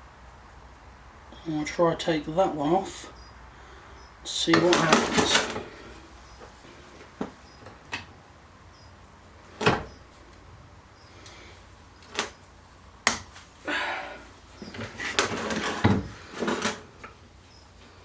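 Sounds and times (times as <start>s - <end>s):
metal scraping and rattling: 14.5s - 17.2s.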